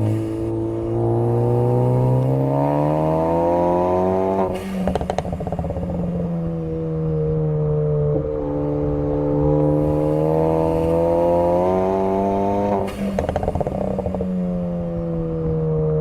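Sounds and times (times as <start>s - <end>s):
car engine revving: 0.0s - 16.0s
exhaust crackles and pops: 4.5s - 6.4s, 12.7s - 15.6s.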